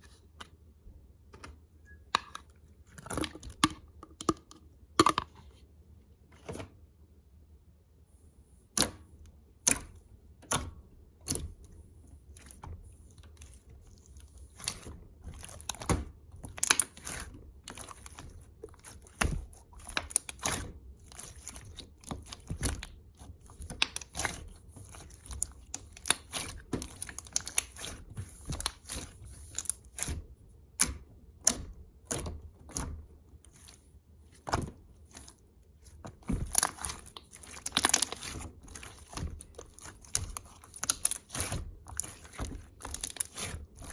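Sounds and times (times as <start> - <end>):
sharp clicks and taps: 3.2 - 5.3.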